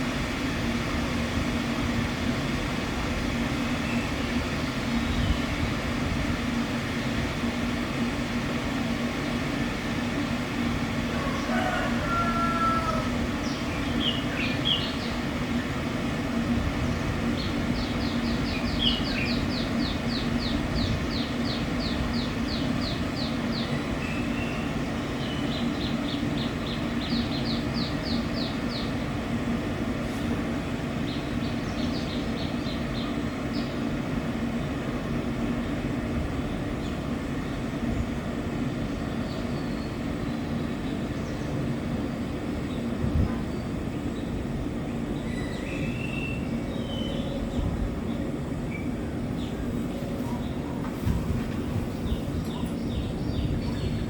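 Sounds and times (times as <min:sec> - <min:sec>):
songbirds calling: 0:03.2 - 0:10.3, 0:10.9 - 0:54.0
steady low rumble: 0:47.4 - 0:54.0.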